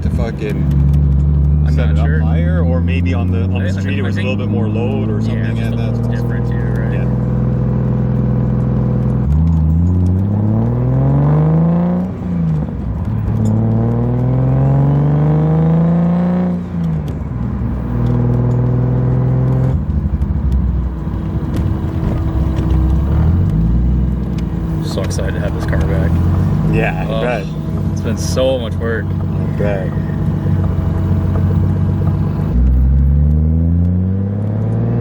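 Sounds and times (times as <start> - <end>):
car engine revving: 0.0 - 35.0.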